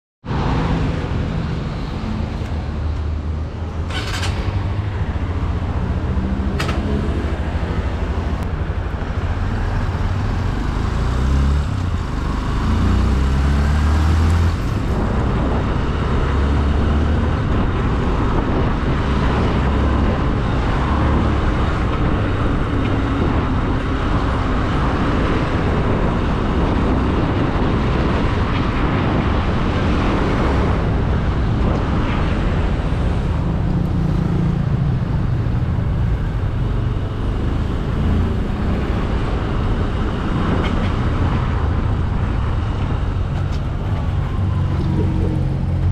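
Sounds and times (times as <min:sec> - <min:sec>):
wind noise on microphone: 0:00.3 - 0:45.9.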